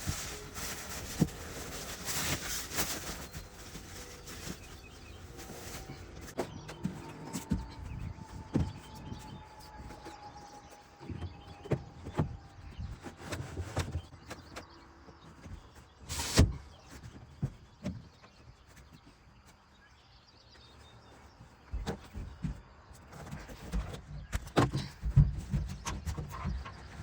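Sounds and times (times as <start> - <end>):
knocks and clunks of handling: 21.6 - 27.0.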